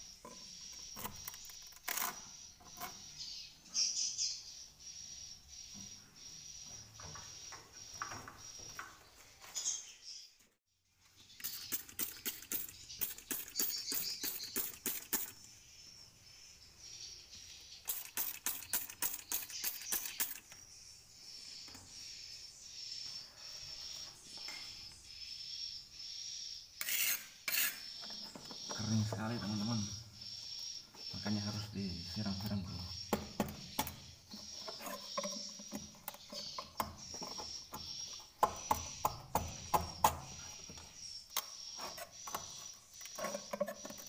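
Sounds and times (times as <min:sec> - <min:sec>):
swiftlets chirping: 0:11.3 - 0:15.4, 0:17.7 - 0:20.6, 0:26.8 - 0:30.0
rapid sharp clicking: 0:17.8 - 0:20.5.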